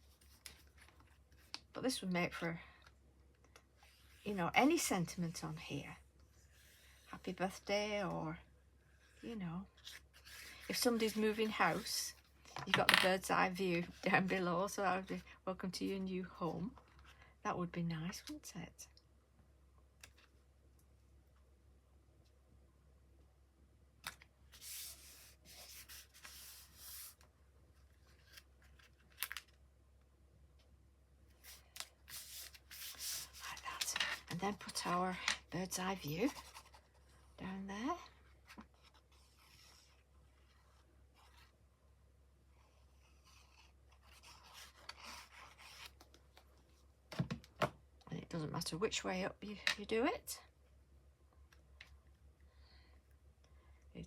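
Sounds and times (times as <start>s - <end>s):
paper rubbing and sliding: 24.5s - 27.2s, 31.4s - 35.0s.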